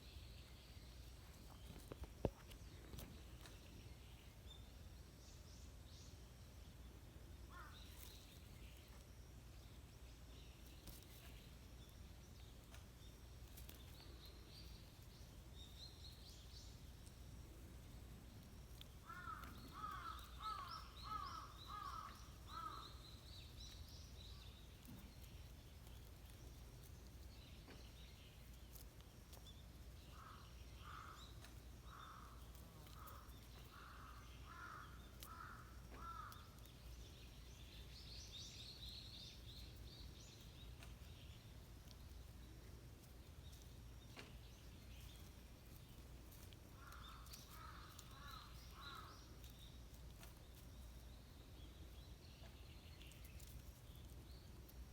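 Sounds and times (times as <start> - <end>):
small birds chirping: 0.0 - 54.9
crow cawing: 19.0 - 22.8, 33.8 - 36.4.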